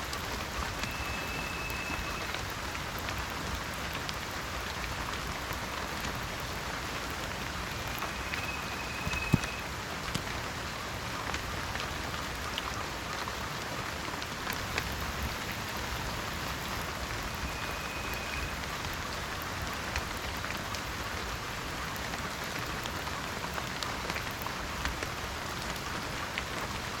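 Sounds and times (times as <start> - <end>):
rain falling on a surface: 0.0 - 27.0
faint high tone: 7.8 - 9.6.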